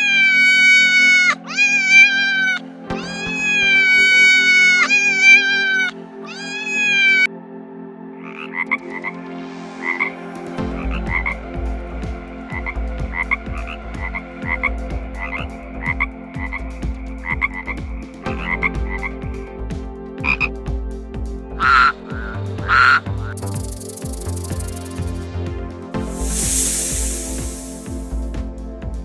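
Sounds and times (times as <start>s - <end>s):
frogs croaking: 8.2s - 9.2s, 21.6s - 25.2s.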